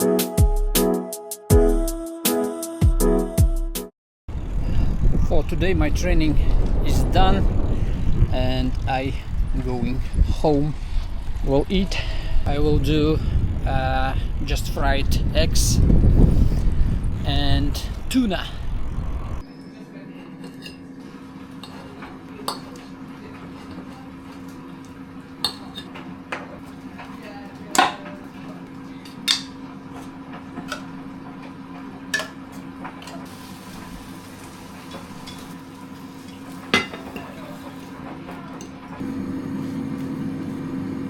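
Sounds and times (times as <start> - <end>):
steady low hum: 4.3 - 19.6
utensils clinking against pans: 21.5 - 24.6, 25.4 - 28.3, 29.0 - 33.3, 34.8 - 35.6, 36.2 - 38.8.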